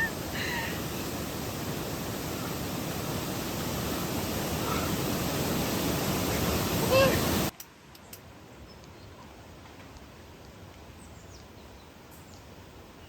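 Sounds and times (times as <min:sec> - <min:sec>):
stream water rushing over rocks: 0:00.0 - 0:07.5.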